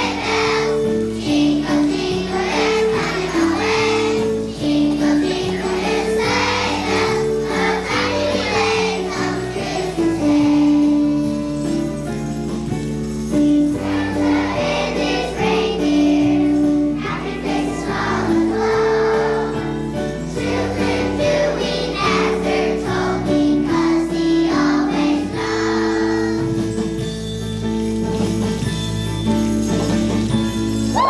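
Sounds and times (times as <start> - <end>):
children's choir singing: 0.0 - 27.1
instrumental accompaniment: 0.0 - 31.0
jingle bells shaking: 0.0 - 31.0.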